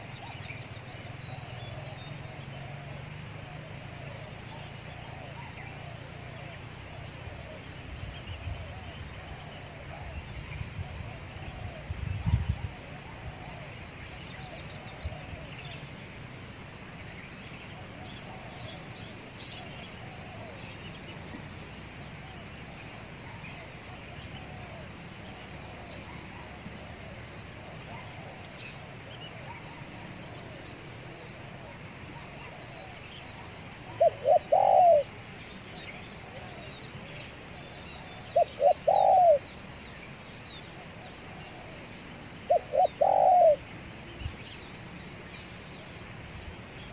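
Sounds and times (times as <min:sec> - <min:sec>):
insect trill: 0:00.0 - 0:46.9
dove cooing: 0:19.6 - 0:20.6, 0:32.1 - 0:35.2, 0:38.0 - 0:39.5, 0:42.5 - 0:43.6
faint bird calls: 0:31.6 - 0:45.5.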